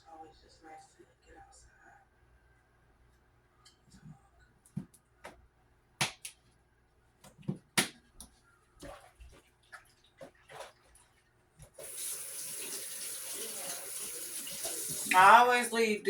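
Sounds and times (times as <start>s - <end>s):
faucet running into sink: 11.8s - 15.3s.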